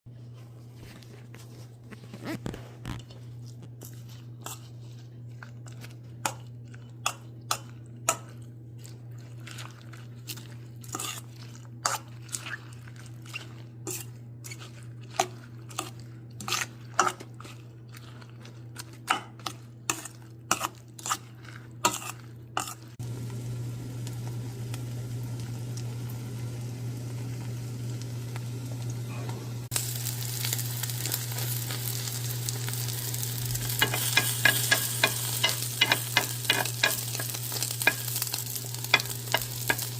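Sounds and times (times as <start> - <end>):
steady low hum: 13.6 - 39.9
food sizzling in a frying pan: 23.0 - 39.9.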